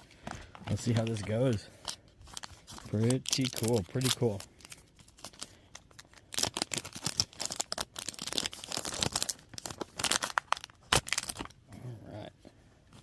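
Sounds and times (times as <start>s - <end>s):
foil wrapper tearing and crinkling: 1.8s - 11.6s.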